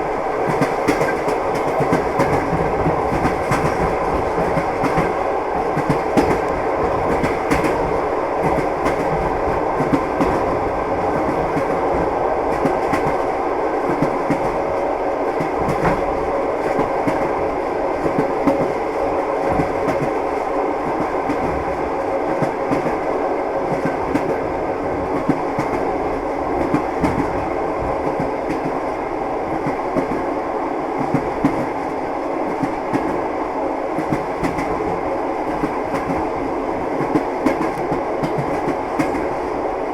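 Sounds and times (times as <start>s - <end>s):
train wheels clattering over rails: 0.4s - 14.6s.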